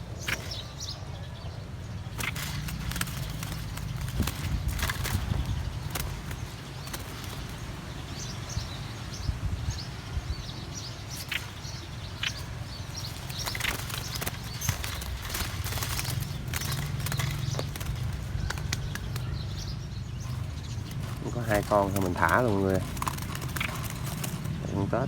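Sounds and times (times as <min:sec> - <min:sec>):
birds fluttering in a cage: 0:00.0 - 0:25.0
low wind rumble: 0:00.0 - 0:25.0
cage knocks and rattles: 0:02.2 - 0:07.8, 0:11.1 - 0:24.6.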